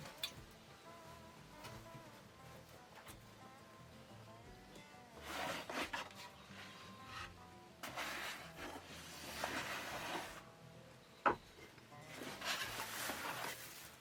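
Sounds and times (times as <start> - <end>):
wood scraping and rubbing: 5.2 - 10.5, 11.3 - 14.0.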